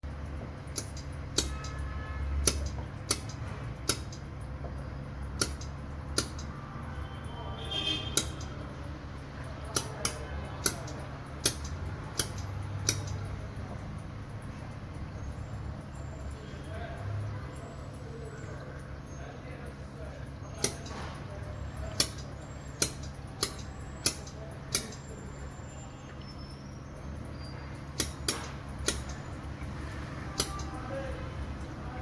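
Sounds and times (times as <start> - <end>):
low machine hum: 0.0 - 32.0
laser welder snaps: 0.7 - 4.3, 5.3 - 6.6, 8.0 - 8.6, 9.7 - 13.3, 20.5 - 25.3, 27.9 - 29.4, 30.2 - 31.1.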